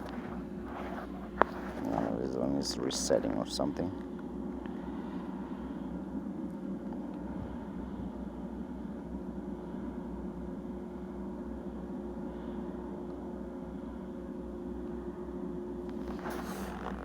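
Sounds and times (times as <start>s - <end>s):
low pulsing rumble: 0.0s - 17.0s.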